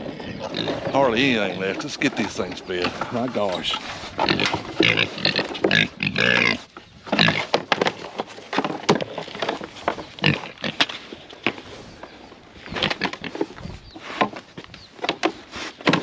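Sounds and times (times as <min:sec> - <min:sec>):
pigs squealing and grunting: 0:00.0 - 0:08.1, 0:10.1 - 0:10.9.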